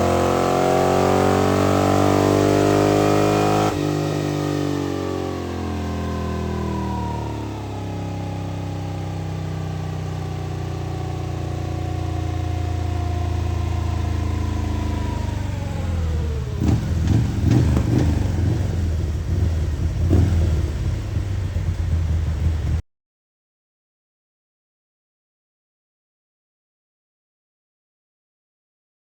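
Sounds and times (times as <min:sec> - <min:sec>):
motorcycle engine idling: 0:10.8 - 0:22.8.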